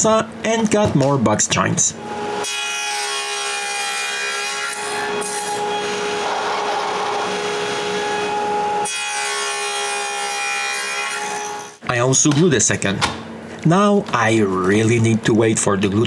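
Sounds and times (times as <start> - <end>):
table saw cutting wood: 2.0 - 11.8.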